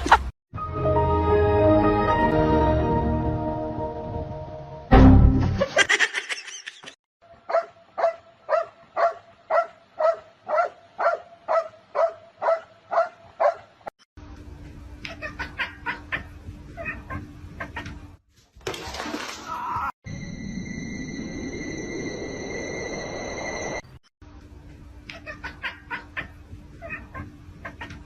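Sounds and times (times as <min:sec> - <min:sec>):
dog barking: 0:07.5 - 0:13.7.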